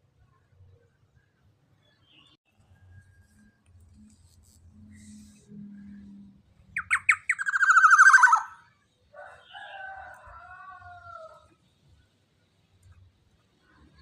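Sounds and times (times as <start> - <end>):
oriole calling with rattling trill: 6.8 - 8.6
harsh drawn-out bird call: 6.8 - 8.7.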